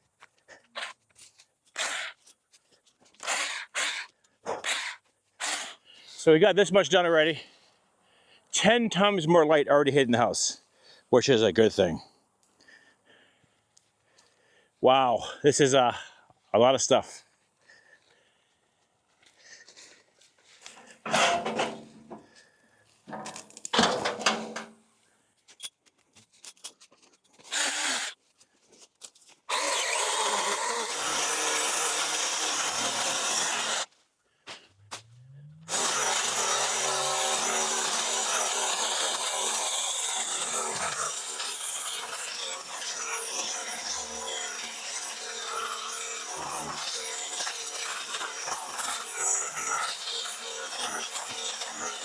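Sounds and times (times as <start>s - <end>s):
battery cutting tool running: 27.5s - 28.2s, 29.5s - 33.9s, 35.7s - 52.0s.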